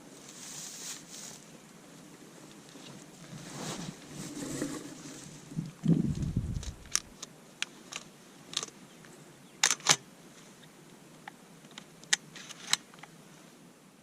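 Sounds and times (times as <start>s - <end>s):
low handling rumble: 4.2s - 7.1s
sharp clicks and snaps: 5.8s - 7.3s.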